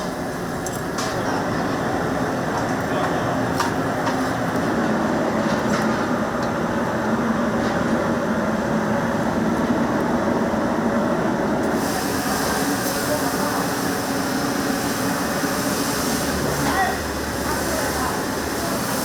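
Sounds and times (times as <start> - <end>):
gas burner flame rushing: 11.6 - 19.0.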